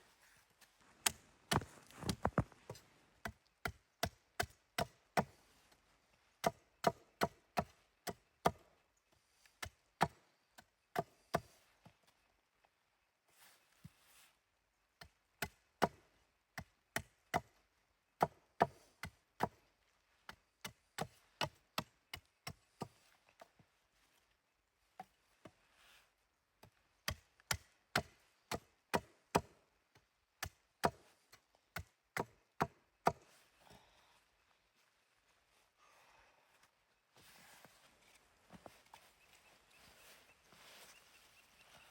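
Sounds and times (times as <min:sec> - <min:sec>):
wood being chopped: 0:01.0 - 0:02.4, 0:27.0 - 0:29.6.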